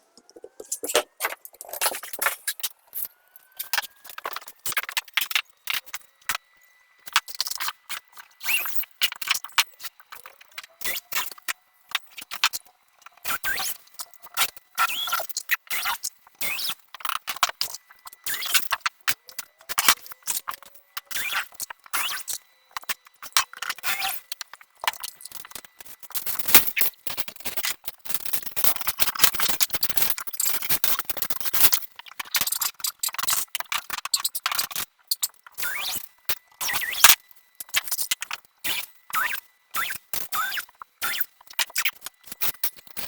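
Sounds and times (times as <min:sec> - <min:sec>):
tools scraping and clattering: 0:00.2 - 0:02.7.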